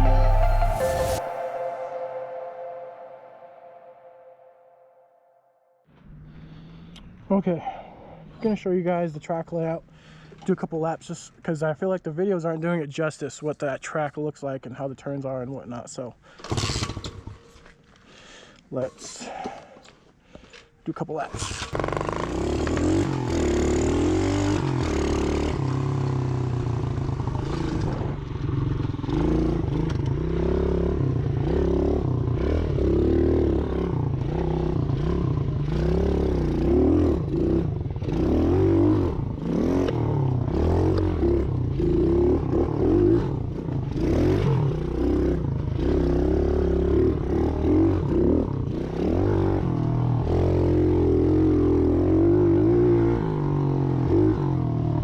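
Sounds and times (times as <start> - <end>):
motorbike engine revving: 21.4 - 55.0.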